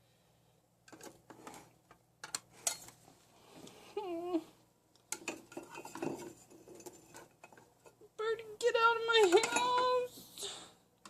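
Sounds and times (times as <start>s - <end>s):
dishes and utensils clinking: 2.6s - 3.0s, 5.1s - 8.0s, 9.2s - 10.1s.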